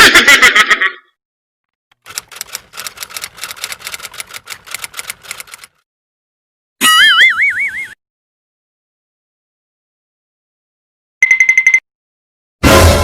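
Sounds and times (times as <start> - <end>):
typewriter keys clattering: 2.0 - 5.8.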